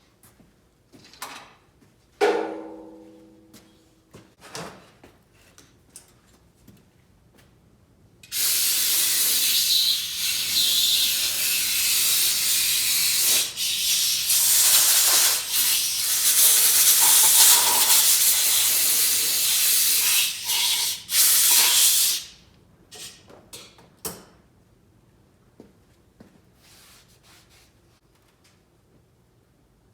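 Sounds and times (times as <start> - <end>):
gas hissing from nozzle: 8.3 - 22.4.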